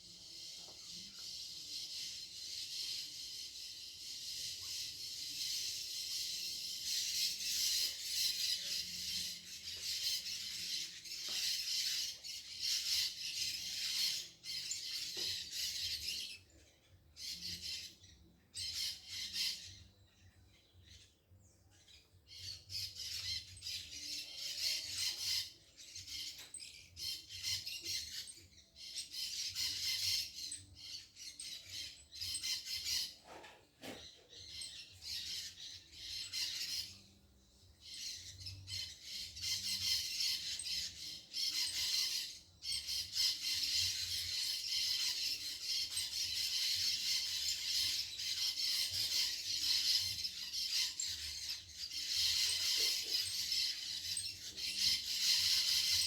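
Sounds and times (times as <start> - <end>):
birds squawking harshly: 29.1 - 33.3, 37.9 - 56.0.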